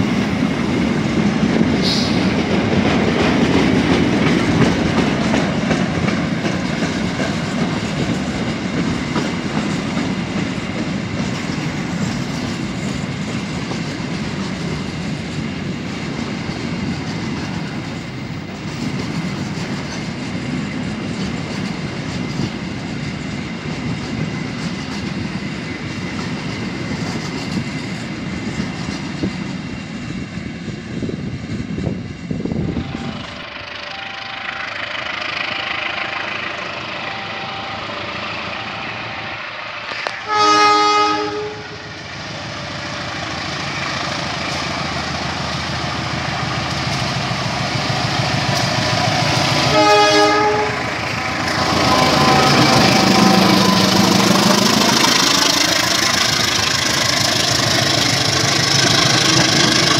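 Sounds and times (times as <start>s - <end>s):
diesel locomotive engine: 0.0s - 59.9s
train horn: 32.5s - 42.0s, 49.6s - 55.9s.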